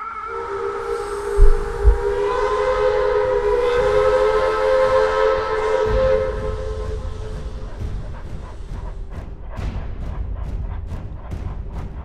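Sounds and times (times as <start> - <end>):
train horn blaring: 0.0 - 7.6
low rumble: 0.7 - 3.4
heavy low thumps: 1.3 - 2.4.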